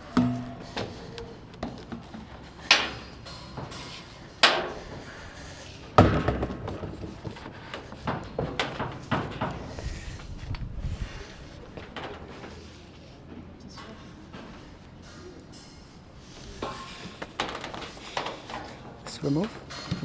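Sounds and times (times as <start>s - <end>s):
pipe fittings knocking and clattering: 0.0s - 1.1s.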